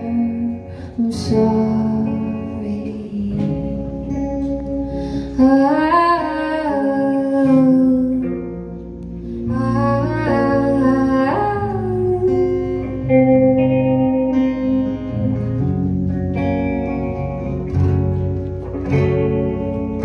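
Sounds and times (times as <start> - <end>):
guitar and bass chords: 0.0 - 20.0.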